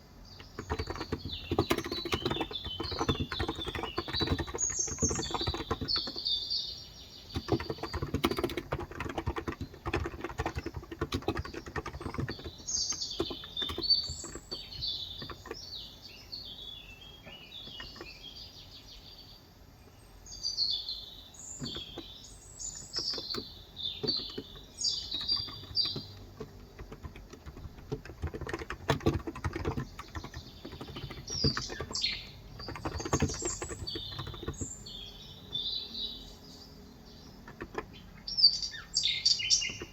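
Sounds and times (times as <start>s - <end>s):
small birds chirping: 0.0s - 39.9s
typing on a keyboard: 0.3s - 6.4s, 7.3s - 15.8s, 17.6s - 18.2s, 21.6s - 34.9s, 37.2s - 38.1s, 39.2s - 39.9s.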